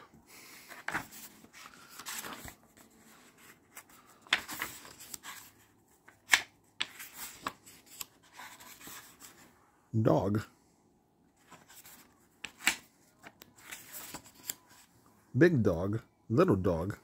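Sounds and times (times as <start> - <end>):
book pages rustling and turning: 0.5 - 9.6, 11.4 - 14.9.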